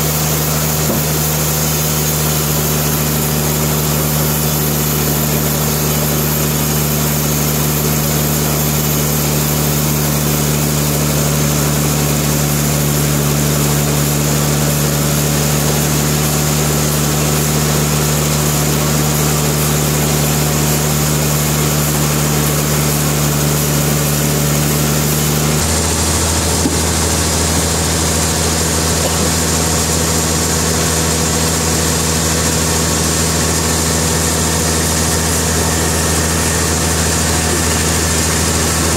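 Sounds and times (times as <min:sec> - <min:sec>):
sawmill machinery humming: 0:00.0 - 0:38.9.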